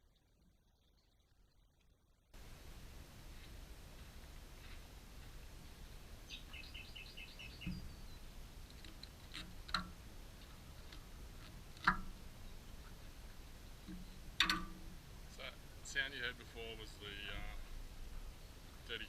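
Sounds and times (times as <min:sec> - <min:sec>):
bird chirping: 0:05.8 - 0:08.4.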